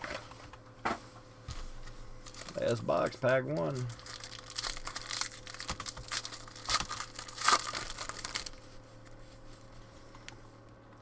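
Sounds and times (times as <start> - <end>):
foil pack tearing and crinkling: 2.2 - 2.8, 3.4 - 8.7.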